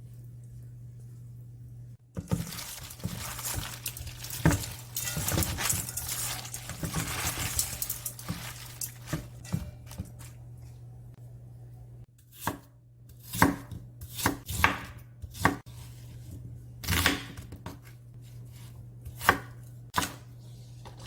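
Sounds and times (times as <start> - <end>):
dishes and glassware clattering: 2.3 - 10.3.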